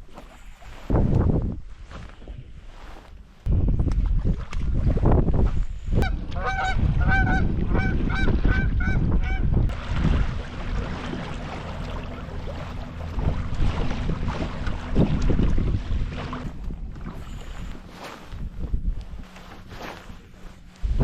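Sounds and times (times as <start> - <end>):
wind rumble on microphone: 0.0 - 21.0
bird honking: 6.0 - 9.5.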